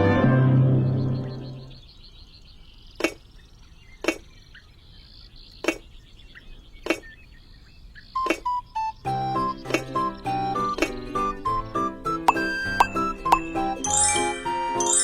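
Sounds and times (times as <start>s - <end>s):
musical notes: 0.0s - 1.8s, 8.4s - 15.0s
insects chirping: 1.1s - 15.0s.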